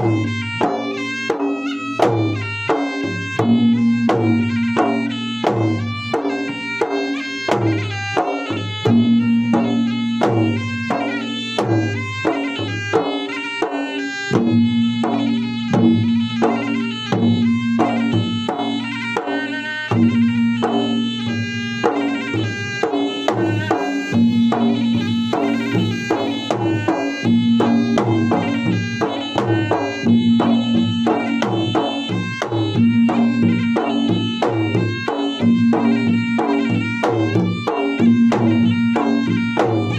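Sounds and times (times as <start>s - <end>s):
drums beating fast rhythm: 0.0s - 39.9s
pitched melody: 0.0s - 39.9s
held low note: 14.3s - 19.2s, 19.9s - 39.9s.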